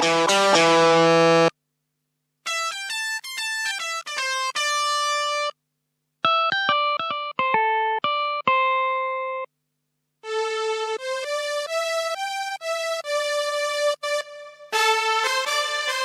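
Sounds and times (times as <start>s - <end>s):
keyboard plucked string notes: 0.0s - 1.5s, 6.2s - 9.5s.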